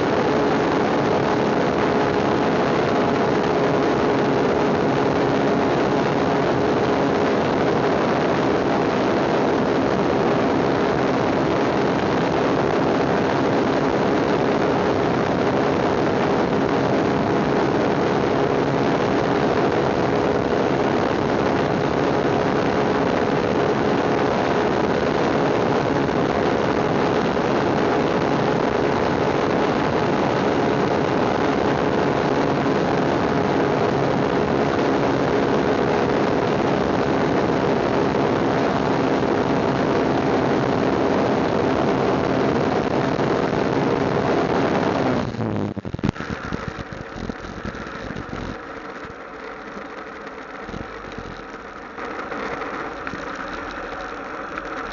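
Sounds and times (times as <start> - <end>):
road and wind noise: 0.0 - 54.9
motorcycle engine running: 45.2 - 54.9.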